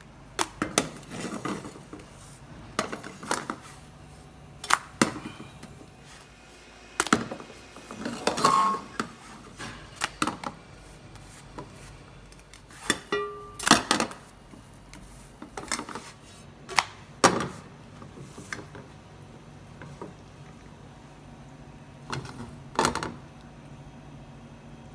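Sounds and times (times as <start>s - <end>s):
spatula scraping on griddle: 5.0s - 12.1s.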